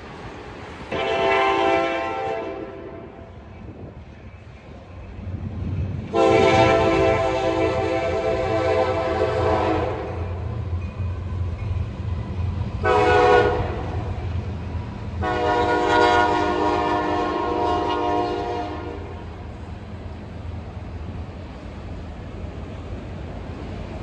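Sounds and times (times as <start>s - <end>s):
train rumbling: 0.0s - 24.0s
locomotive air horn blasts: 0.9s - 3.3s, 6.1s - 10.4s, 12.8s - 14.1s, 15.2s - 19.2s.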